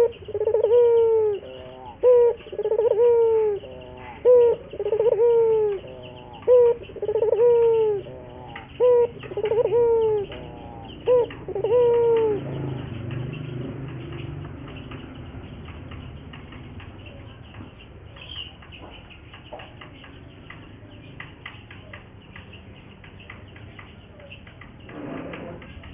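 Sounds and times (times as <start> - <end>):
dove cooing: 0.0 - 17.4, 24.1 - 25.9.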